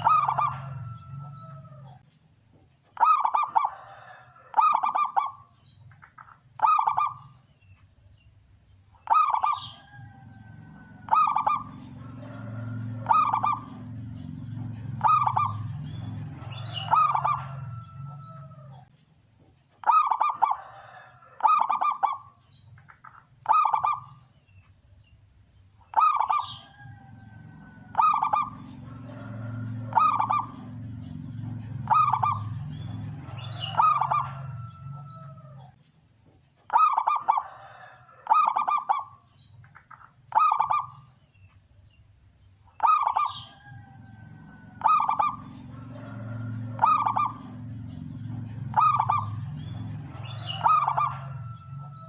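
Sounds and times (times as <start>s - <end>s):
dove cooing: 0.0s - 2.0s, 3.0s - 5.5s, 6.6s - 7.3s, 9.0s - 18.9s, 19.8s - 22.4s, 23.4s - 24.2s, 25.9s - 35.7s, 36.7s - 39.2s, 40.3s - 41.1s, 42.8s - 52.0s
low hum: 10.0s - 18.9s, 26.6s - 35.7s, 43.4s - 52.0s.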